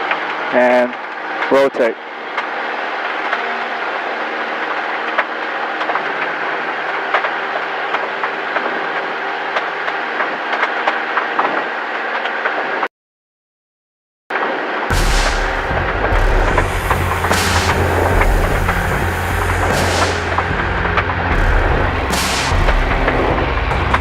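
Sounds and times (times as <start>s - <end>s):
aircraft engine at full power: 14.9s - 24.0s.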